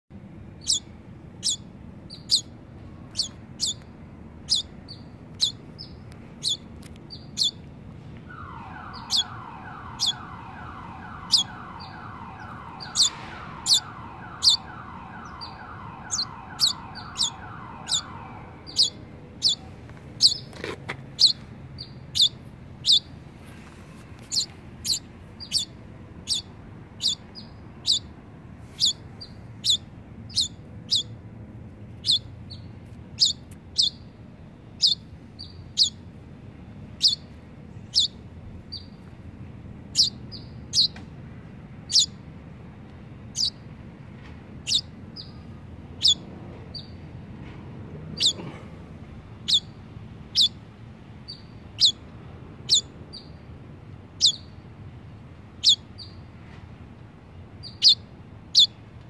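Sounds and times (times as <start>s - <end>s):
young bird chirping: 0.6s - 7.7s, 8.4s - 23.2s, 23.9s - 28.1s, 28.7s - 31.2s, 31.9s - 34.1s, 34.7s - 36.1s, 36.9s - 39.1s, 39.9s - 41.0s, 41.9s - 42.2s, 43.3s - 43.6s, 44.6s - 47.0s, 48.2s - 48.4s, 49.4s - 50.6s, 51.2s - 53.4s, 54.2s - 54.6s, 55.6s - 56.2s, 57.6s - 58.8s.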